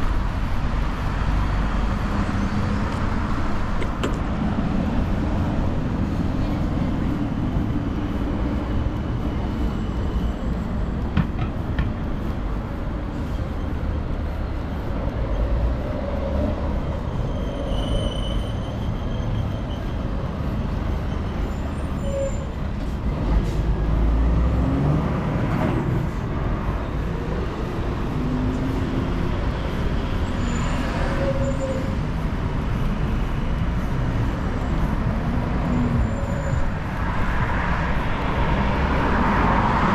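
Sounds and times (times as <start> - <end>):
road traffic rumble: 0.0 - 39.9
loud vehicle passing: 23.2 - 31.2, 31.9 - 39.9.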